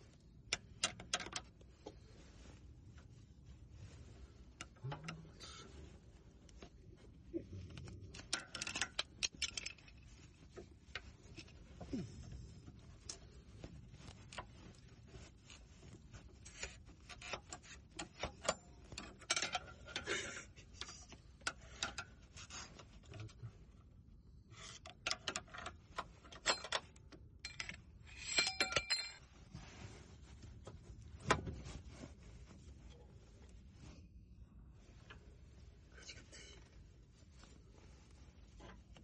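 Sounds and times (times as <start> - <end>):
metal tools clinking: 26.3 - 29.3.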